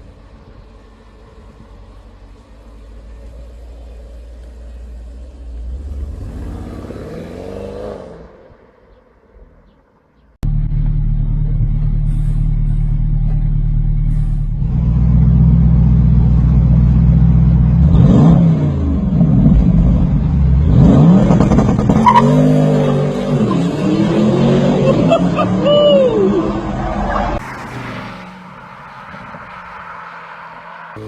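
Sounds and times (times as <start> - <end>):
car exhaust revving: 10.4 - 25.8.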